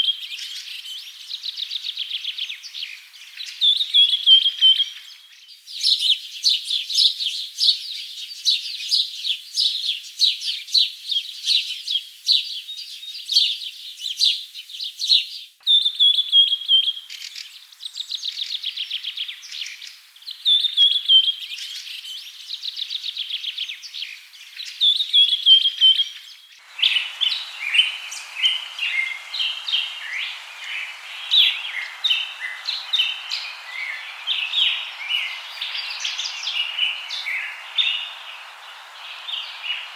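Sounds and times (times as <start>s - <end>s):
birds chirping and trilling: 24.0s - 39.9s
steady hiss: 26.6s - 39.9s.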